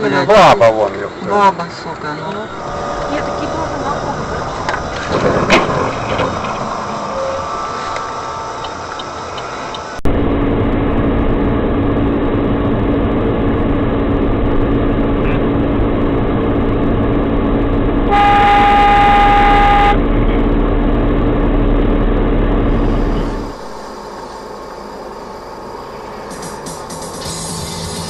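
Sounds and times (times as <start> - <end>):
vehicle engine and road noise: 0.0 - 28.0
car horn: 18.1 - 20.2.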